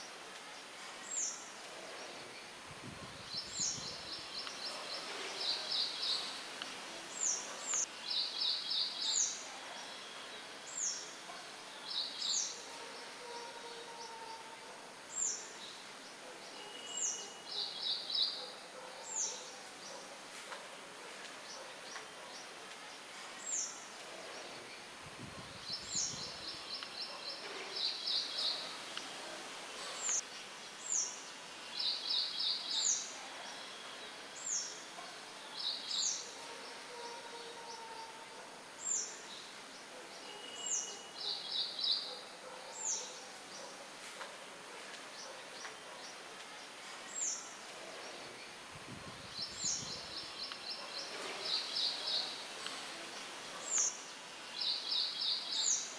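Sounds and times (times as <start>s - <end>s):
songbirds chirping: 0.0s - 55.9s
wind hiss: 1.7s - 8.2s, 24.1s - 27.0s, 47.8s - 54.7s.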